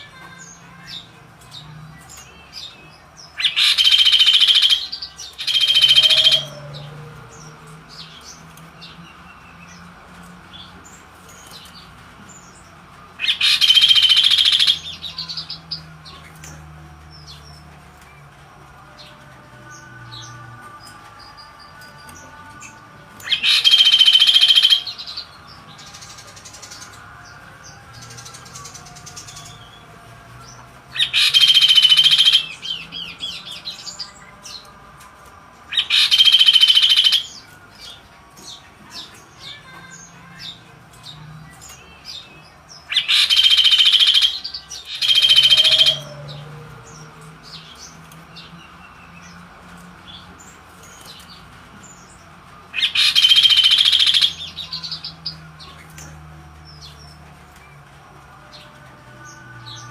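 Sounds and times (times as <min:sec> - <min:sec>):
songbird singing in loud bursts: 0:02.6 - 0:09.0, 0:13.2 - 0:15.9, 0:22.1 - 0:26.9, 0:27.9 - 0:34.6, 0:35.7 - 0:39.2, 0:41.7 - 0:49.4, 0:50.1 - 0:57.3.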